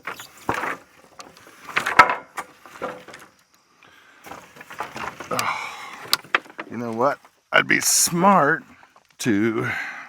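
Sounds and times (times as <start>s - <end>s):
wooden boards knocking together: 0.0s - 3.4s, 4.2s - 7.1s.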